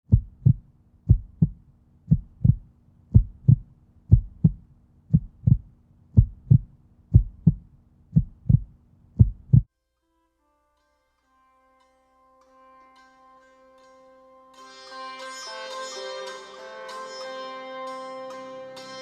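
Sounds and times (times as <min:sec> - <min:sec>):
heartbeat thumps: 0:00.0 - 0:09.7
faint steady hum: 0:00.1 - 0:09.7.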